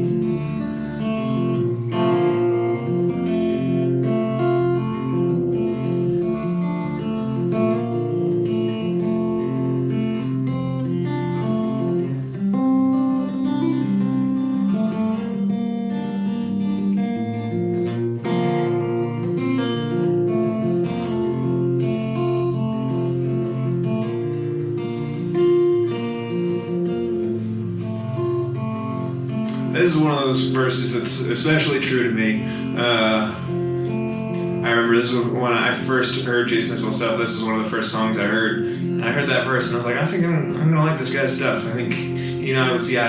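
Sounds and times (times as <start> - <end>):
acoustic guitar strumming: 0.0 - 43.0.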